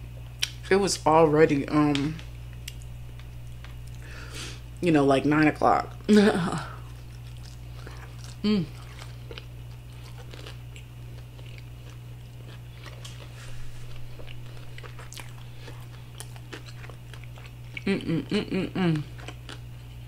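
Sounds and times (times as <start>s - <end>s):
steady low hum: 0.0s - 20.0s
closed-mouth chewing: 6.7s - 20.0s
person humming mm: 8.4s - 8.9s, 17.8s - 19.2s.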